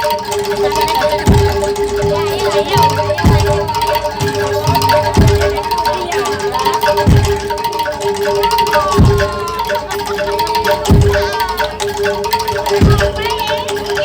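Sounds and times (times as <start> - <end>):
gliding melodic line: 0.0 - 14.0
metal mallet instruments: 0.0 - 14.0
deep drum strikes: 1.2 - 6.2, 6.9 - 8.2, 9.0 - 9.5, 12.7 - 13.2.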